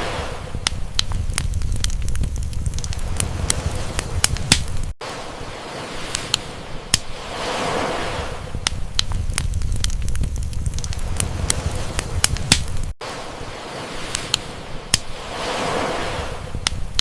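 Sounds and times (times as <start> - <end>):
sea wave: 0.0 - 17.0
low rumble of burning wood: 0.4 - 5.0, 8.4 - 13.0, 16.5 - 17.0
campfire crackling and popping: 0.5 - 5.0, 6.0 - 7.2, 8.5 - 13.0, 14.0 - 15.3, 16.5 - 17.0.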